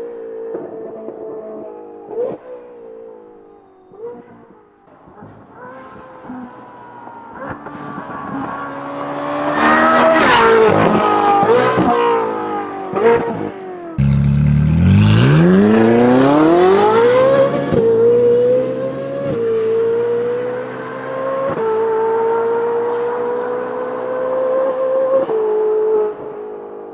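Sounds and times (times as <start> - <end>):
car accelerating and shifting up: 5.6 - 26.7
sports car engine revving: 14.0 - 21.2.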